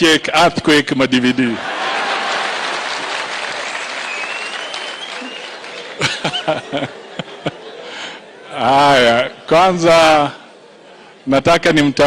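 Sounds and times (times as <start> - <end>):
audience applauding: 1.6 - 6.9.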